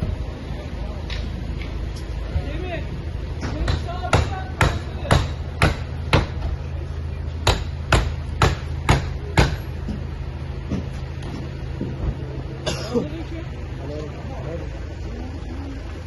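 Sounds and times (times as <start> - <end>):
low steady hum: 0.0 - 16.0
sharp hammering blows: 3.4 - 6.6, 7.4 - 9.8.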